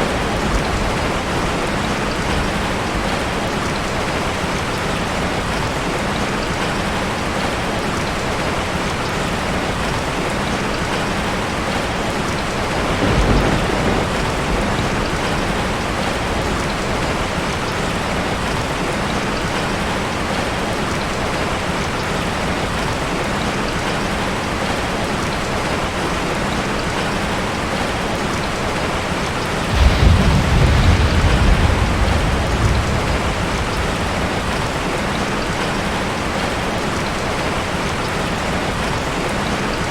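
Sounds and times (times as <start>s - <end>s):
heavy rain falling: 0.0s - 39.9s
thunder rumbling: 12.5s - 17.6s, 29.6s - 36.5s.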